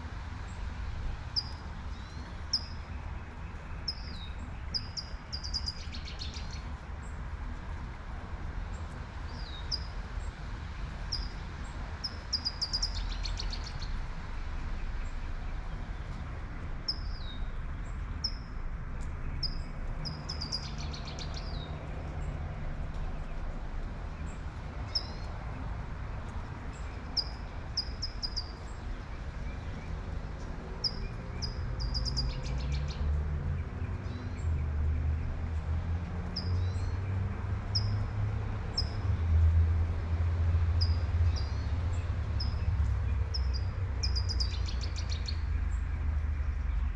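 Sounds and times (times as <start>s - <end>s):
small birds chirping: 1.4s - 7.2s, 8.8s - 14.0s, 19.0s - 22.3s, 26.2s - 35.0s, 40.8s - 46.9s
light rain: 6.6s - 31.9s.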